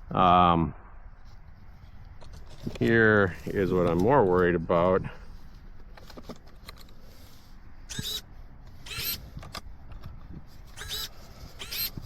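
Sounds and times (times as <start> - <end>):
wind rumble on microphone: 8.8 - 12.0.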